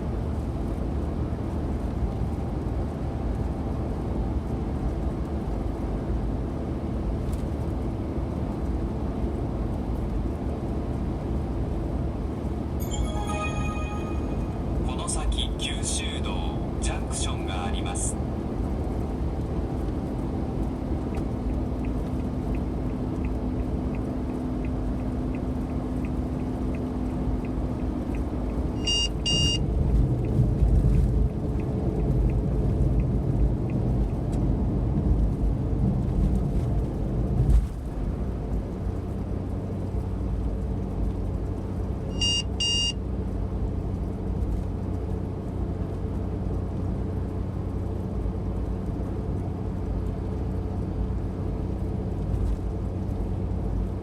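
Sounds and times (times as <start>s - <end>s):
engine and road noise: 0.0s - 54.0s
electronic double beeps: 12.8s - 15.0s, 28.8s - 29.6s, 42.2s - 43.0s.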